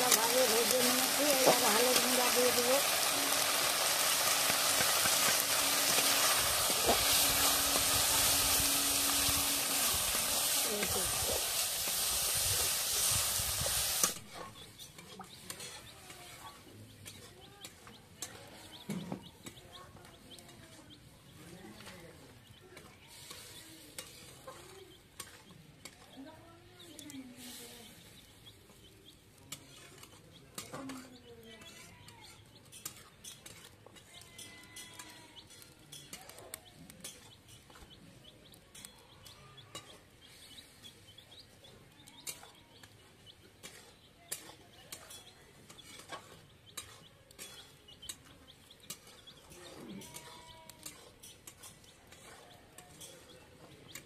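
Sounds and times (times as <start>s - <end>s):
meat sizzling in pan: 0.0s - 14.4s.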